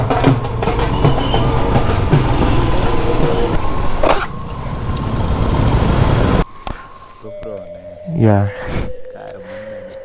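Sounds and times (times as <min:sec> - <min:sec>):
motorcycle engine running: 0:00.0 - 0:06.4.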